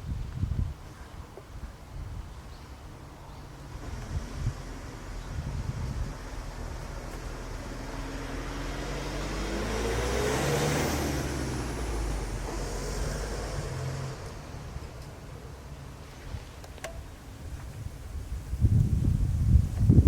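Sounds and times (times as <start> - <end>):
road vehicle driving past: 3.5 - 16.6.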